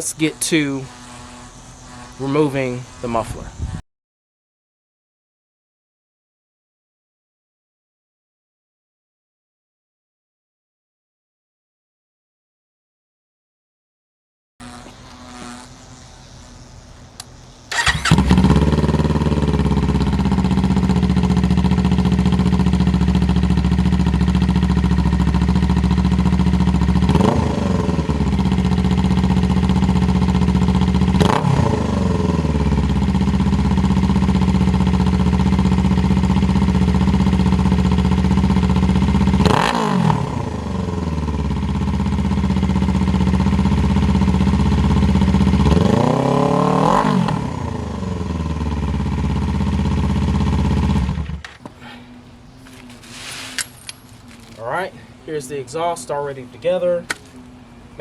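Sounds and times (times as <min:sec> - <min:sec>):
motorcycle engine idling and revving: 0:00.0 - 0:03.2, 0:14.6 - 0:58.0.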